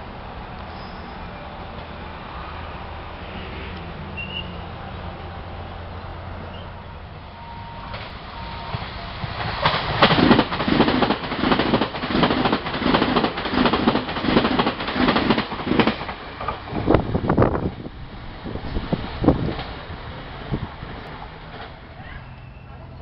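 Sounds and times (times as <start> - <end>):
train wheels clattering over rails: 7.9 - 17.9, 18.6 - 21.9.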